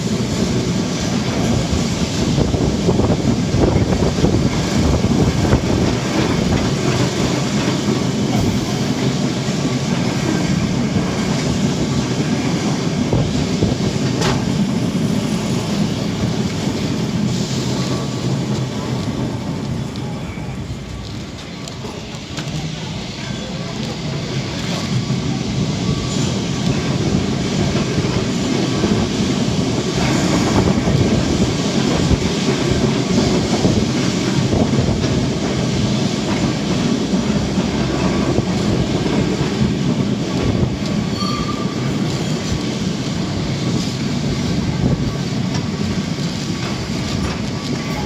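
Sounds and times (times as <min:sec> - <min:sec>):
tram wheels rumbling on rails: 0:00.0 - 0:48.0
high wheel squeal: 0:41.0 - 0:42.7.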